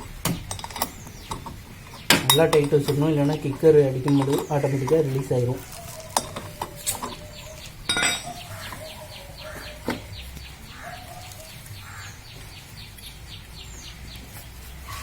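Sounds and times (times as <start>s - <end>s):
metal tool clanking: 0.0s - 8.9s
faint high chirping: 4.0s - 15.0s.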